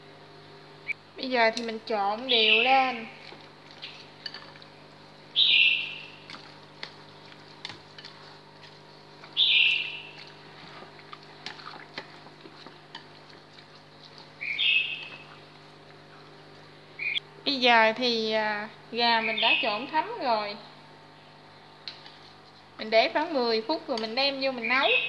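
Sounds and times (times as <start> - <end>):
steady electrical hum: 0.0 - 25.0
bird chirping: 2.3 - 2.8, 5.4 - 6.2, 9.4 - 10.2, 14.4 - 15.3, 17.0 - 17.2, 19.2 - 19.8.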